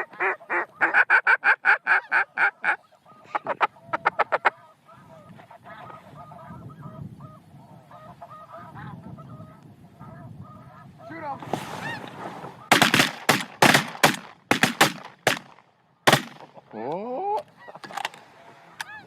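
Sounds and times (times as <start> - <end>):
flock of geese calling: 0.0 - 13.0, 16.4 - 19.0
rapid waterfowl calls: 0.0 - 16.8, 17.4 - 19.0.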